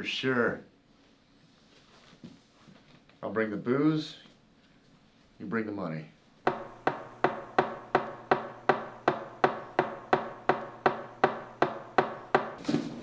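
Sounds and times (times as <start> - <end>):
knocking with ringing tone: 6.5 - 12.7.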